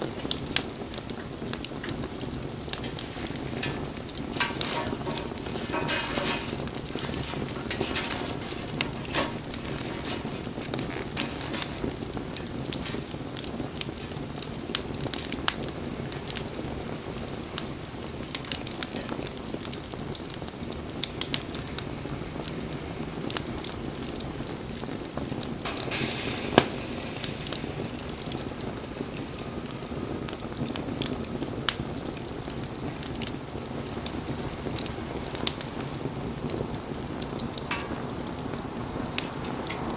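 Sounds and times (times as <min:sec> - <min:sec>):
campfire crackling and popping: 0:00.0 - 0:39.9
hiss of flame: 0:00.0 - 0:39.9.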